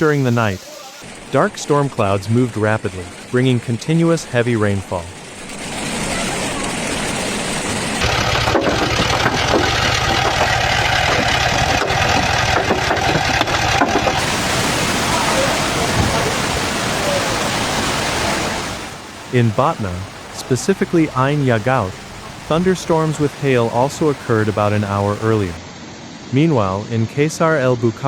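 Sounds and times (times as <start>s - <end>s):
heavy rain hissing: 0.0s - 1.9s, 14.2s - 25.6s.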